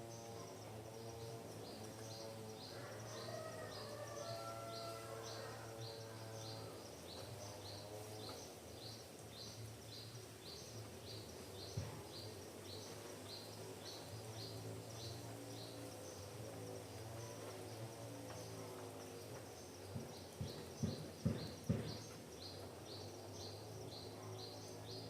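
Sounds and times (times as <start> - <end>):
sharp knock: 20.4 - 22.2.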